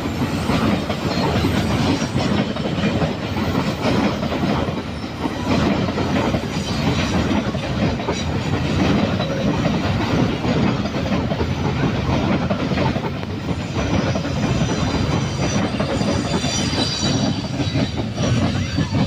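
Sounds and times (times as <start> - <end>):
train wheels clattering on rails: 0.0 - 19.0
high-pitched squeal: 13.6 - 19.0.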